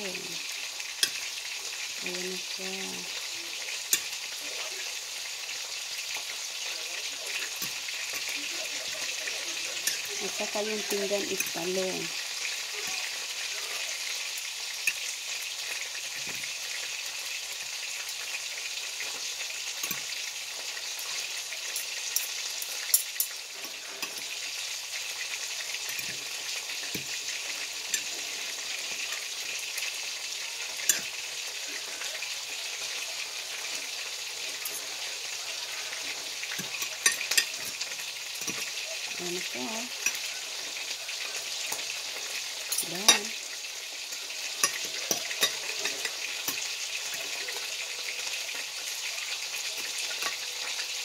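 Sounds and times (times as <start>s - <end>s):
food frying sizzle: 0.0s - 51.0s
cutlery clicking on a plate: 9.8s - 10.1s, 14.8s - 15.0s, 36.5s - 37.8s, 38.4s - 38.7s, 44.6s - 47.2s, 49.8s - 50.4s.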